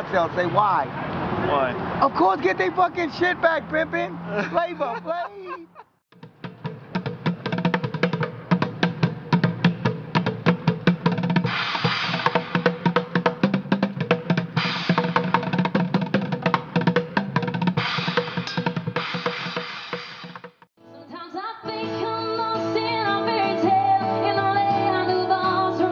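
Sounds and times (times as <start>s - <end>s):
fast drum kit playing: 6.1s - 20.7s
cymbals crashing: 11.5s - 13.0s, 14.6s - 15.6s, 17.8s - 20.4s.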